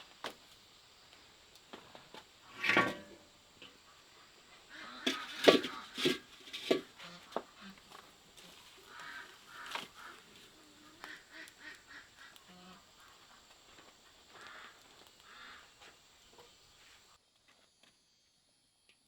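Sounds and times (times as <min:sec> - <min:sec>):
fowl quacking calls: 0:08.4 - 0:13.5, 0:14.3 - 0:15.9.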